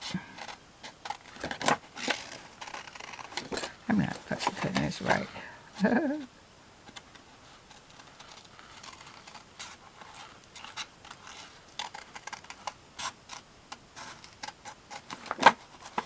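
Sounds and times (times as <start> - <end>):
paper rustling: 0.0 - 6.0, 6.9 - 13.4, 14.0 - 16.0.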